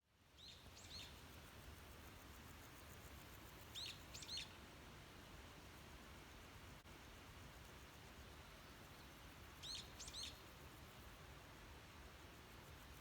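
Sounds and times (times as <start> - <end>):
faint outdoor background noise: 0.0 - 13.0.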